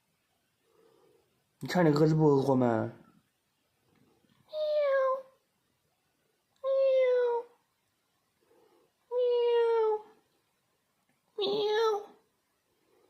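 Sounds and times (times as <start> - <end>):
kitten meowing: 4.6 - 5.4.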